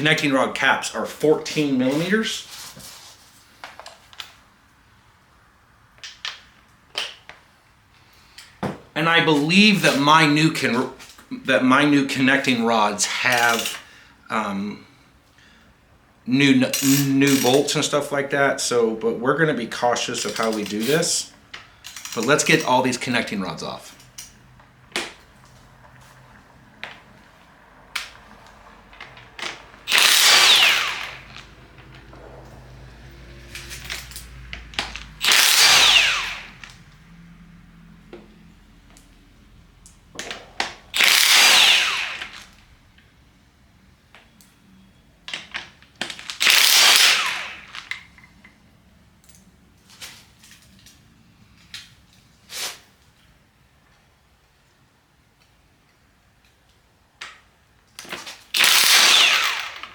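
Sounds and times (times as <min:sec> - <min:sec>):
metal tools clinking: 0:13.0 - 0:13.9, 0:16.7 - 0:17.9, 0:20.2 - 0:23.1
impact wrench burst: 0:13.1 - 0:13.9, 0:21.8 - 0:22.8, 0:29.0 - 0:36.9, 0:40.2 - 0:42.7, 0:46.2 - 0:48.1, 0:58.5 - 0:59.9.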